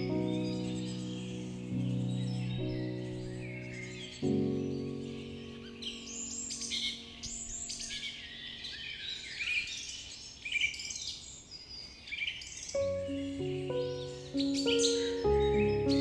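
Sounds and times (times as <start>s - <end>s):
calm ambient music: 0.0s - 9.5s, 12.8s - 16.0s
birds chirping and trilling: 0.0s - 16.0s.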